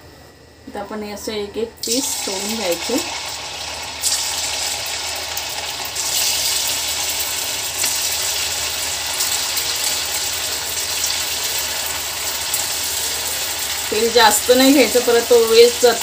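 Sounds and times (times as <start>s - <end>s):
chicken deep-frying in oil: 1.8s - 16.0s.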